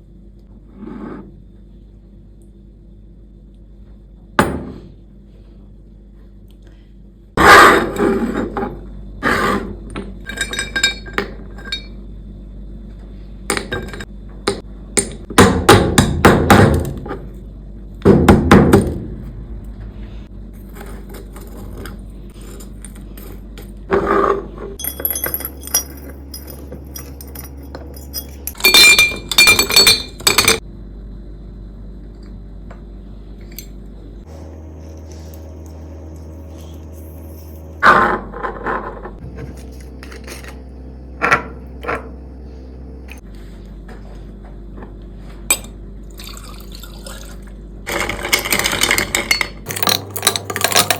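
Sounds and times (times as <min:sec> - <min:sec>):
glass clinking: 0:24.8 - 0:30.6.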